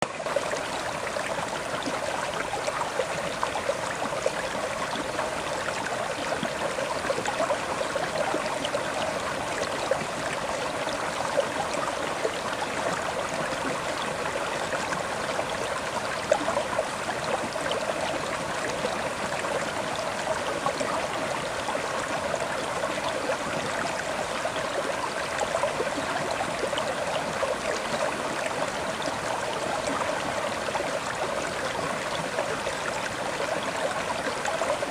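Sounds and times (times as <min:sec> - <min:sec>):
river water flowing over stones: 0:00.0 - 0:34.9.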